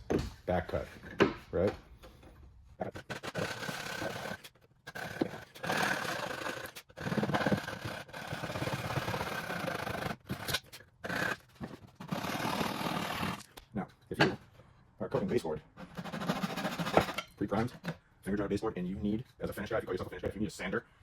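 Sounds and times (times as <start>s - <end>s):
hand saw rasping through wood: 2.8s - 13.5s, 15.8s - 18.0s.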